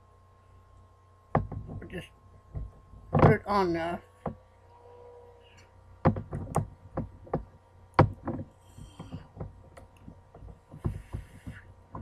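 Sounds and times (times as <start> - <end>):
knitting loom knocks and clicks: 6.0 - 12.0.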